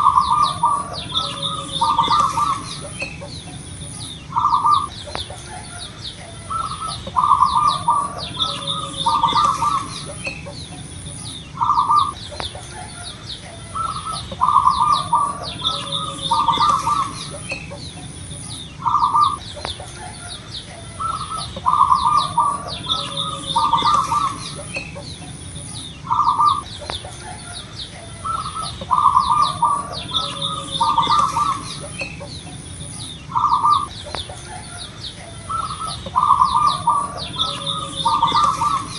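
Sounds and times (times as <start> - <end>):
dove cooing: 0.0 - 38.9
small birds chirping: 0.0 - 38.9.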